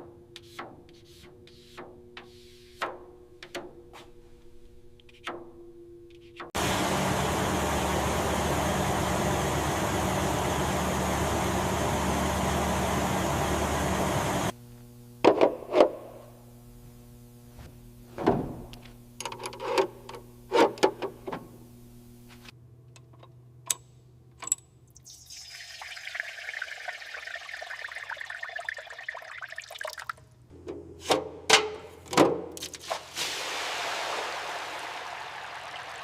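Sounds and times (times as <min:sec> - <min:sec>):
rushing hissing flow: 0:33.2 - 0:36.0.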